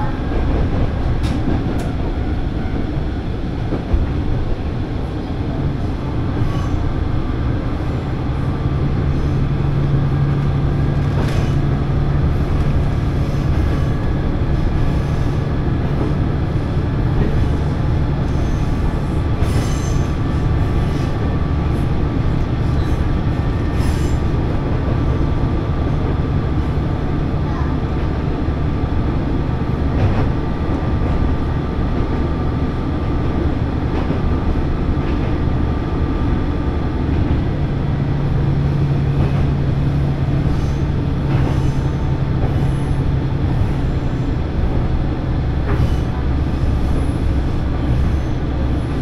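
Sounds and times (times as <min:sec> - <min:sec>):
railcar engine and wheels rumbling: 0:00.0 - 0:49.0.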